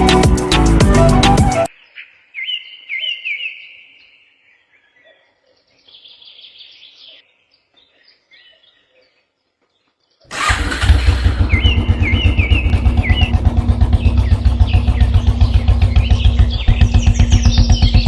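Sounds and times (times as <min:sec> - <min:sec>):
loud music with heavy bass: 0:00.0 - 0:01.7
birds chirping: 0:00.0 - 0:18.0.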